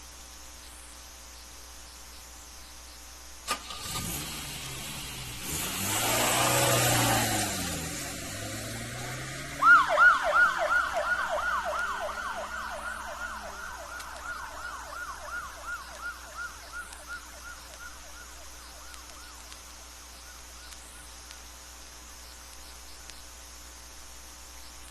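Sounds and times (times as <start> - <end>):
car engine revving: 3.5 - 14.7
police yelp siren: 9.3 - 19.5.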